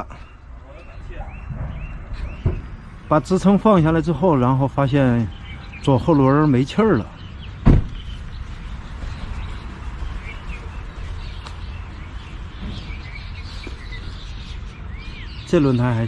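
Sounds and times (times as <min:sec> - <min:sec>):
birds chirping faintly: 0:00.0 - 0:16.0
low rumble: 0:01.0 - 0:05.8
sharp thump: 0:01.5 - 0:02.8, 0:07.6 - 0:08.1.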